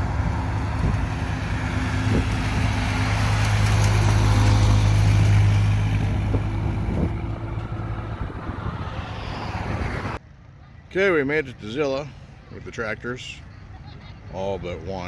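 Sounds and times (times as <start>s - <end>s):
vehicle engine running: 0.0s - 10.2s
road and wind noise: 0.0s - 15.0s.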